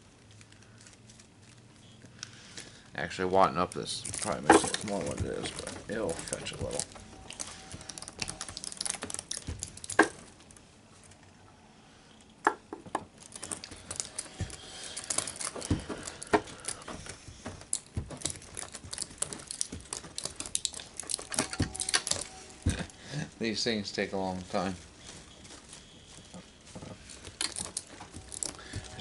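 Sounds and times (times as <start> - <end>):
wire crinkling and clicking: 0.0 - 29.0.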